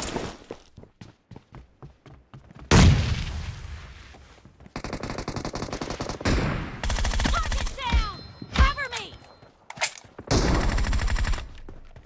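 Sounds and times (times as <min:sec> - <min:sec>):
rapid automatic gunfire: 0:04.8 - 0:07.8, 0:10.4 - 0:11.4.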